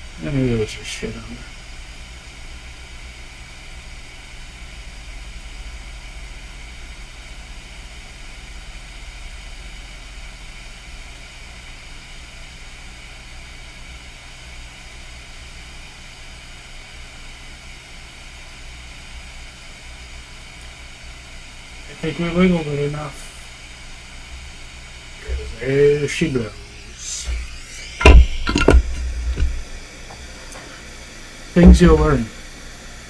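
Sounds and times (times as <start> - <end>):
hot-air station hissing: 0.0 - 33.0
fan hum: 20.6 - 33.0.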